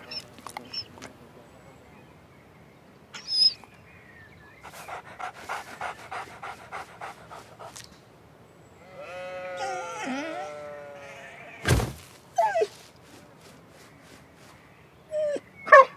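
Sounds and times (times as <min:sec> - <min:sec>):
cartoon dog panting: 0:04.6 - 0:07.9.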